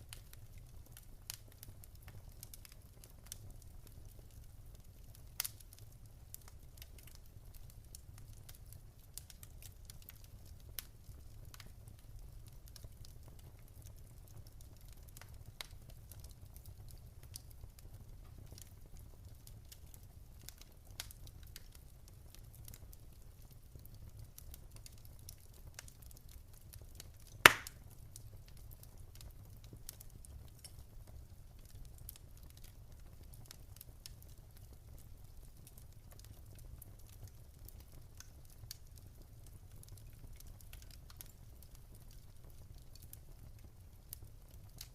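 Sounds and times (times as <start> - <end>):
wood fire crackling: 0.0 - 44.9
loud fire pop: 27.4 - 27.8.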